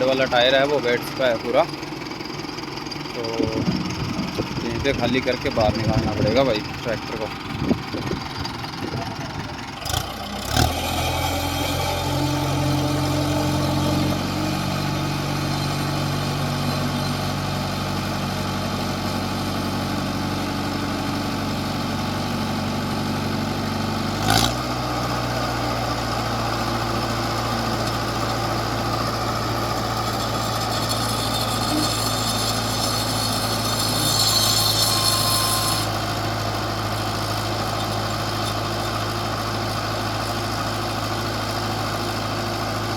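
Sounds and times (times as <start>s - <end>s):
tractor diesel engine idling: 0.0s - 42.9s.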